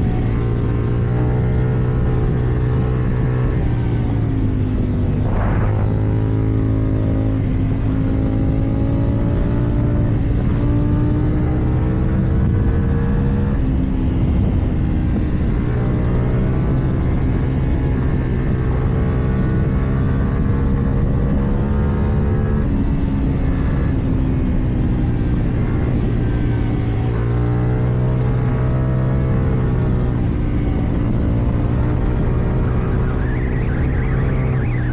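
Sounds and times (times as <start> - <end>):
motorcycle engine running: 0.0 - 34.9
wind and road noise: 0.0 - 34.9.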